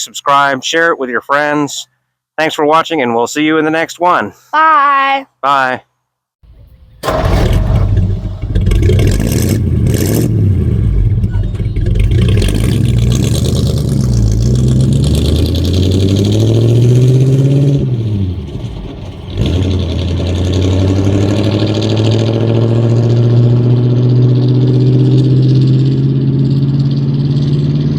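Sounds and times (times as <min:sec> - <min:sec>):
truck engine revving: 0:06.5 - 0:27.9.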